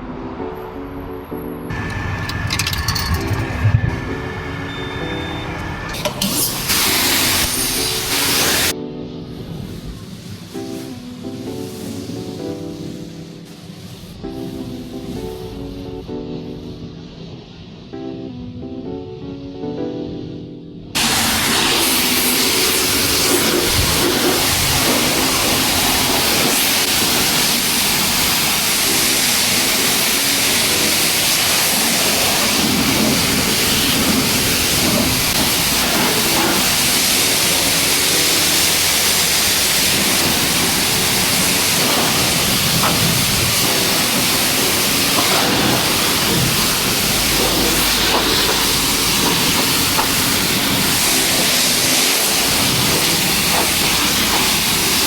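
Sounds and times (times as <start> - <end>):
high-pressure water spray hissing: 4.0 - 8.8, 9.4 - 15.9, 21.0 - 55.0.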